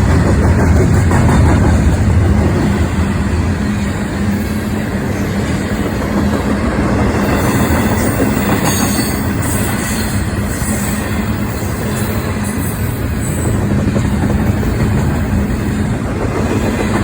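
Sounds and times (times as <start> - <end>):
train wheels rumbling on rails: 0.0 - 17.0
wheel squeal: 7.3 - 13.6.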